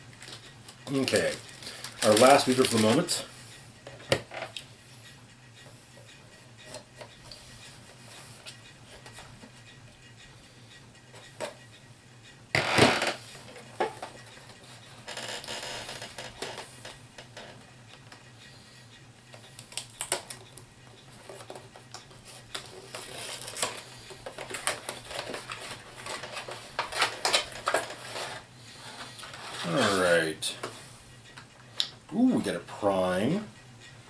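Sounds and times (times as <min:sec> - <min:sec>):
packaging rustling: 0:00.2 - 0:03.2.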